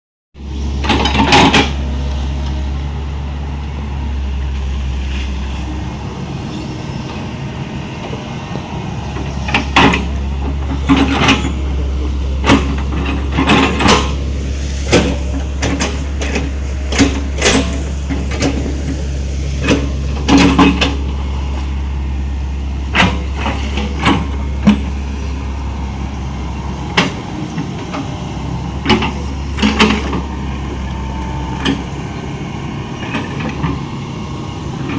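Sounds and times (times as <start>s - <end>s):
diesel engine humming: 0.4s - 34.9s
metal knocks and clanks: 9.2s - 21.7s.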